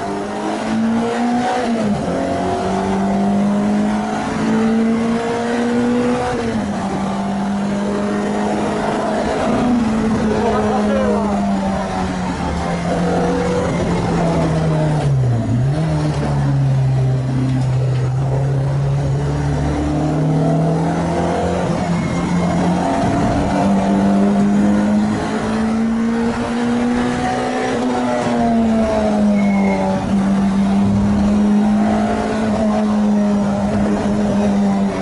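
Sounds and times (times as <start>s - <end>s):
race car engine accelerating: 0.0s - 35.0s.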